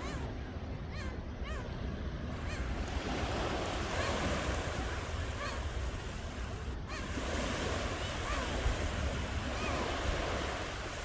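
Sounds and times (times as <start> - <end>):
ocean surf washing ashore: 2.8 - 11.0.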